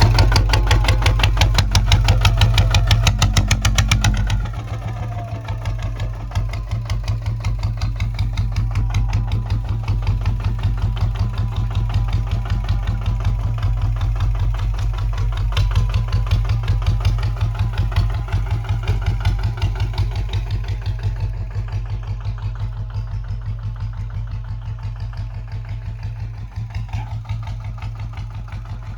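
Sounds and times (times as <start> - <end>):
diesel engine chugging: 0.0 - 28.9.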